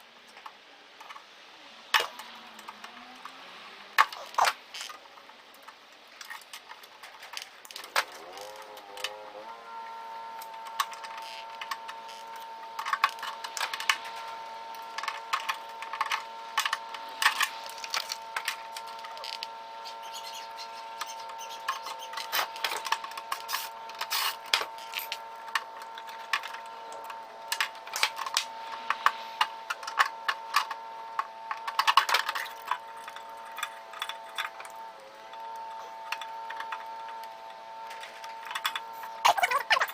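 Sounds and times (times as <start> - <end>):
steady droning tone: 8.6 - 39.9
metal parts clicking and clattering: 37.9 - 39.9.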